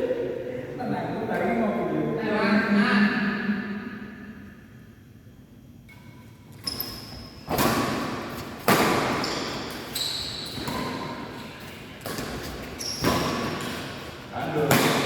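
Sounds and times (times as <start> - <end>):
shoe squeaks: 6.6 - 7.5, 9.1 - 11.2, 12.6 - 13.5.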